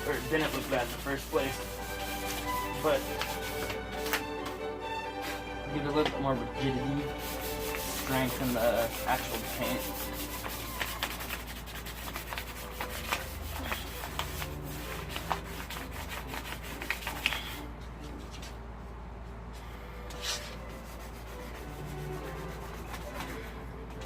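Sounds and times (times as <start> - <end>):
sandpaper rubbing on metal: 0.0 - 4.1, 7.0 - 17.6, 20.2 - 23.5.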